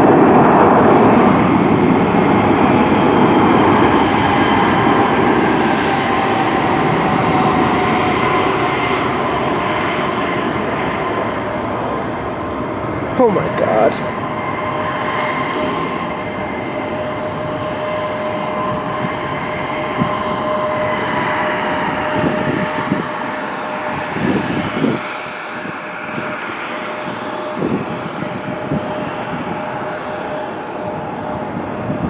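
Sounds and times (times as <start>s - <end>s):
jet engines roaring and whining: 0.0s - 32.0s.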